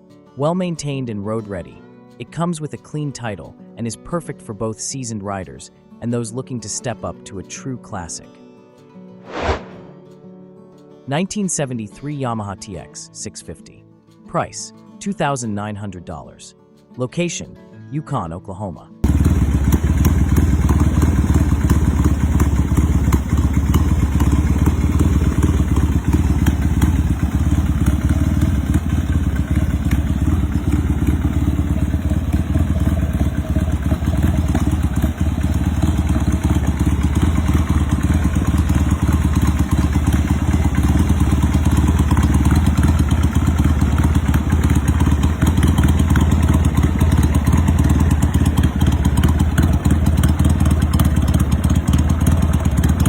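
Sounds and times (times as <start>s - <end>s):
motorcycle engine idling: 19.0s - 53.0s.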